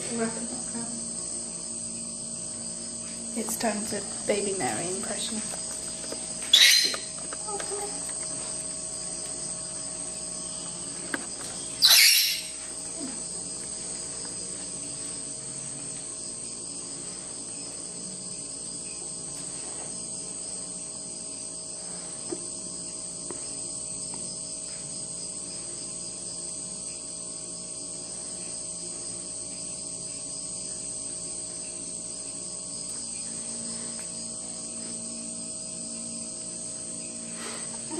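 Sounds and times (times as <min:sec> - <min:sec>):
crickets chirring: 0:00.0 - 0:37.9
high-pitched squeak: 0:06.5 - 0:07.1.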